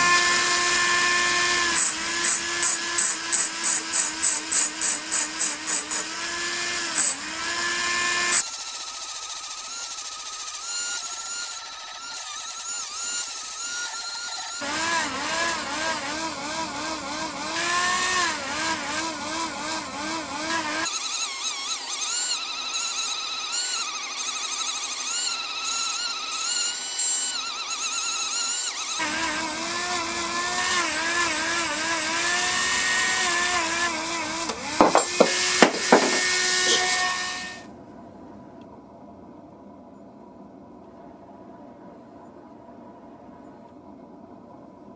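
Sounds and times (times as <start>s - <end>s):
power tool motor whining: 0.0s - 37.6s
sharp knocks: 34.5s - 36.8s.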